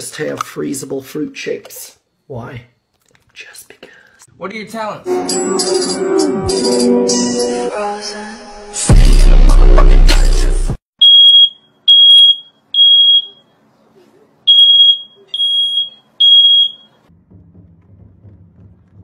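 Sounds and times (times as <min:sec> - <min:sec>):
smoke alarm beeping: 0:11.0 - 0:13.5, 0:14.5 - 0:17.0.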